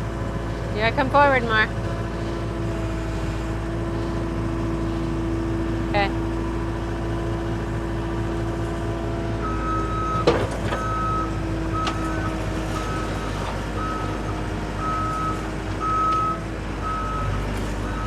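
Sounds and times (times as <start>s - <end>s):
track loader engine running: 0.0s - 18.0s
backup alarm beeping: 9.4s - 18.0s
metal clank: 10.2s - 11.2s.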